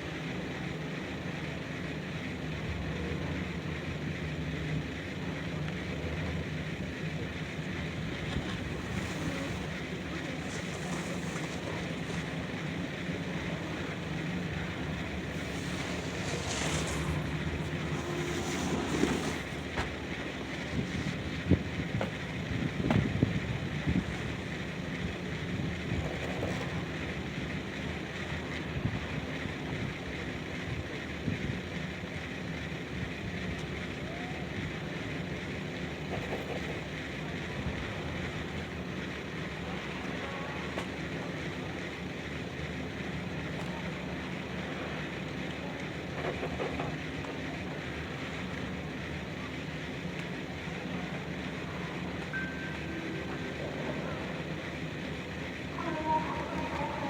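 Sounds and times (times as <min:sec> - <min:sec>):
low steady hum: 0:00.0 - 0:57.0
low rumble: 0:06.7 - 0:26.4
even rush of noise: 0:07.4 - 0:25.0.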